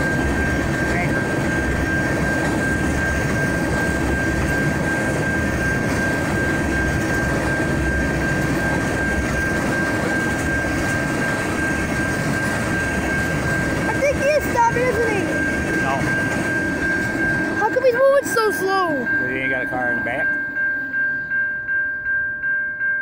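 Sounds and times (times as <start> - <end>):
freight train wheels rattling: 0.0 - 22.0
steady high-pitched tone: 0.0 - 23.0.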